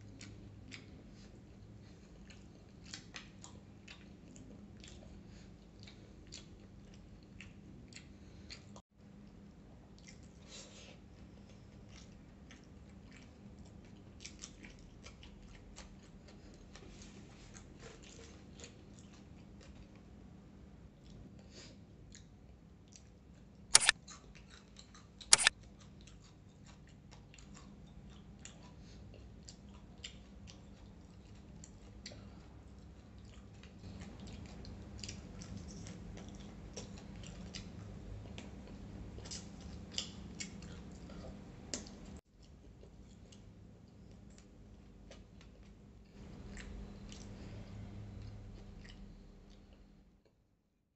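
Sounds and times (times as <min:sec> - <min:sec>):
chewing and lip smacking: 0:00.1 - 0:08.8, 0:09.9 - 0:20.1, 0:22.1 - 0:49.9
sharp loud clicks: 0:25.3 - 0:25.5.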